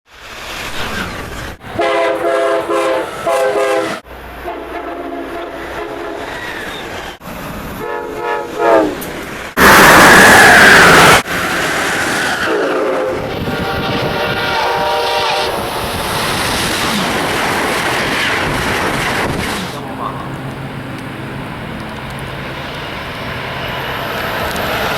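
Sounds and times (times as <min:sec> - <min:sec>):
train rumble: 0:00.1 - 0:24.9
train rushing past: 0:00.1 - 0:24.9
train horn blasts: 0:01.7 - 0:06.3, 0:07.8 - 0:09.0, 0:12.4 - 0:16.1.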